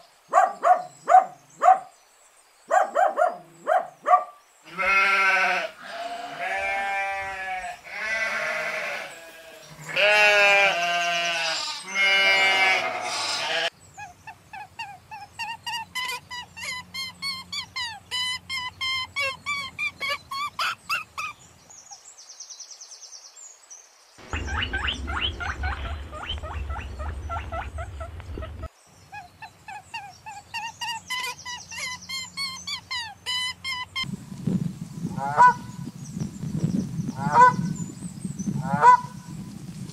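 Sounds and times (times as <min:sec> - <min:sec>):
loud drawn-out bleating: 0:04.6 - 0:13.7.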